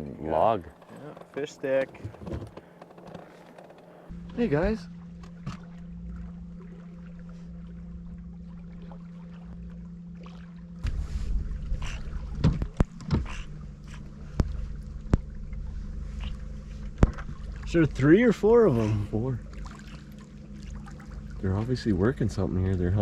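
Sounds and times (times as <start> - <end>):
boat motor humming: 0.0 - 23.0
water noise: 0.0 - 23.0
knocks on hull: 12.3 - 13.4, 17.0 - 17.5.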